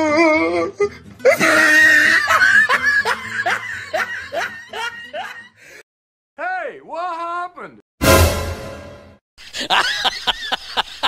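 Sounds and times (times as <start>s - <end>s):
person laughing: 1.2s - 5.5s, 9.4s - 11.0s.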